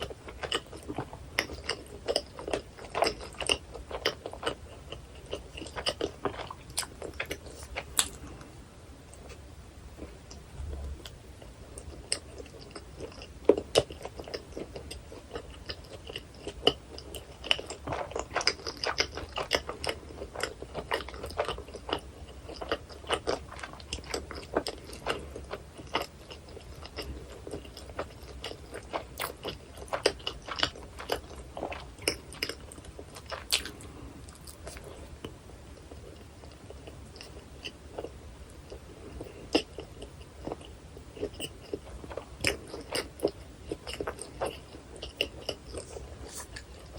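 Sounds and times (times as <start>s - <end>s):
person biting and chewing food: 0.0s - 8.5s, 41.2s - 46.9s.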